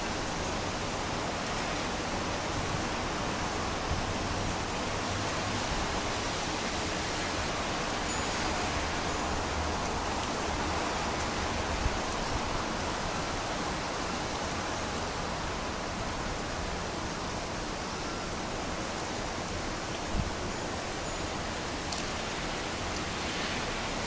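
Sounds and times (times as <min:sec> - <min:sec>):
wind gusts rumbling on microphone: 0:20.0 - 0:20.5.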